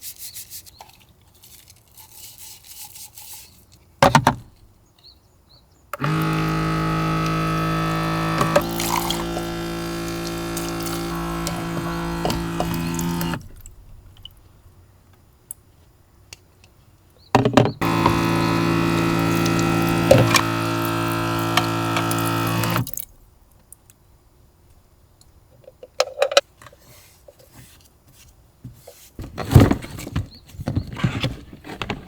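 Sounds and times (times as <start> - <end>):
small motor humming: 6.0 - 13.6, 17.8 - 23.0
water pouring: 6.1 - 13.6, 17.8 - 23.1.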